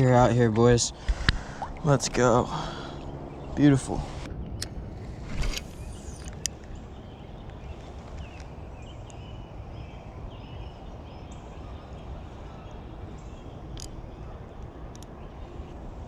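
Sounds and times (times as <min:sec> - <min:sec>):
birds chirping: 0:00.0 - 0:16.0
low outdoor rumble: 0:00.0 - 0:16.0
sharp clicks: 0:13.8 - 0:14.0.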